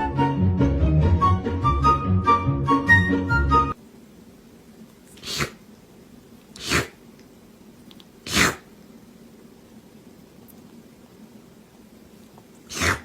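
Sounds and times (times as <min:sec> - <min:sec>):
pet animal sneezing: 0:05.1 - 0:05.7, 0:06.5 - 0:07.0, 0:08.2 - 0:08.8, 0:12.6 - 0:13.0.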